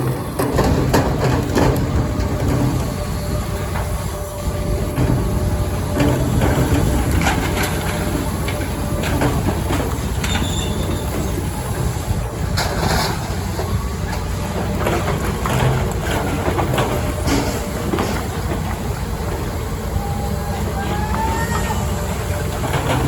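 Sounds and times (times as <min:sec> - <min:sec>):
knocks and clatter: 0:00.0 - 0:03.0
machinery low rumble: 0:00.0 - 0:23.0.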